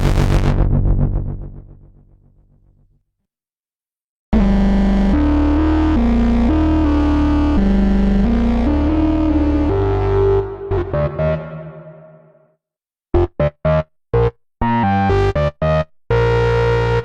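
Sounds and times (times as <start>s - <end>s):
synthesizer held low note: 8.8s - 12.4s
synthesizer short clipped notes: 10.4s - 12.4s.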